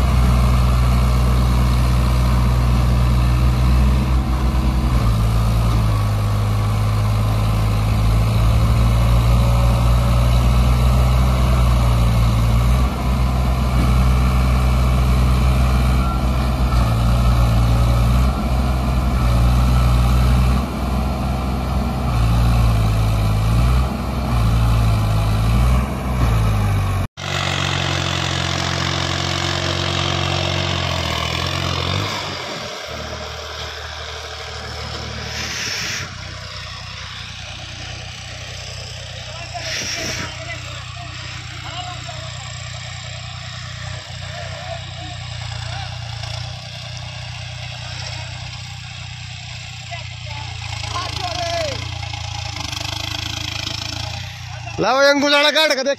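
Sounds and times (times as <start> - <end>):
diesel tractor engine running: 0.0 - 55.9
engine running quieter: 0.0 - 55.9.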